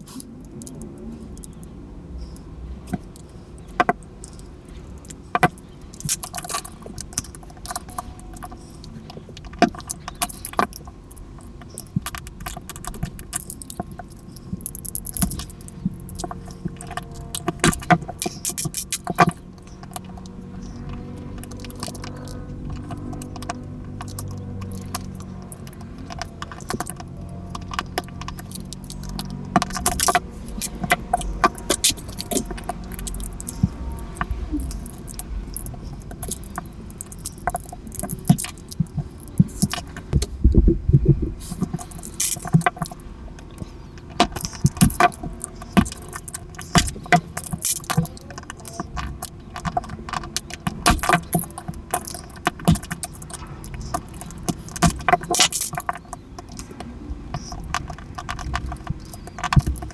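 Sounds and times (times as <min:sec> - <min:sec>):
plastic cube pieces clicking: 0:03.7 - 0:20.3, 0:20.9 - 0:40.0, 0:41.4 - 0:59.9
dull knocks: 0:40.2 - 0:41.4.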